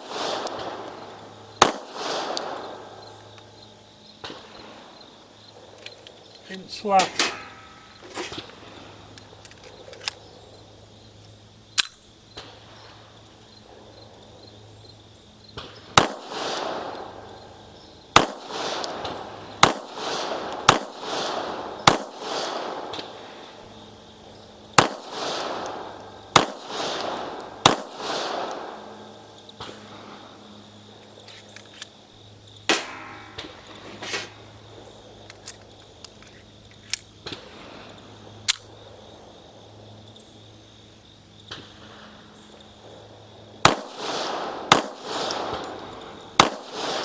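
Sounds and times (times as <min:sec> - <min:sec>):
pistol shots with echo: 0:00.0 - 0:03.4, 0:06.6 - 0:08.5, 0:15.6 - 0:29.9, 0:32.7 - 0:33.9, 0:42.8 - 0:47.0.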